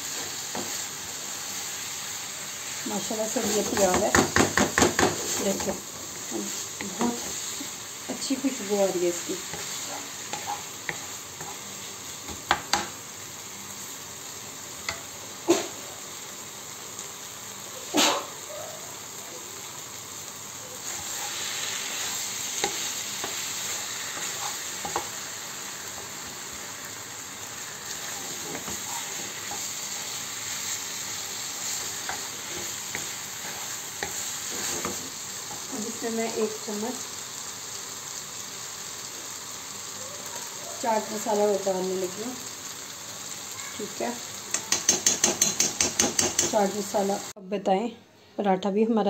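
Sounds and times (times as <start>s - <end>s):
meat sizzling in a frying pan: 0.0s - 47.4s
spoon knocking against pan: 3.8s - 5.2s, 44.5s - 46.6s.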